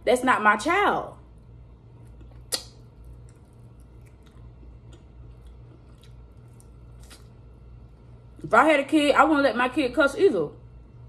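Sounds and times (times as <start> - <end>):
soft chewing: 1.3 - 8.5
lips smacking: 2.1 - 7.3.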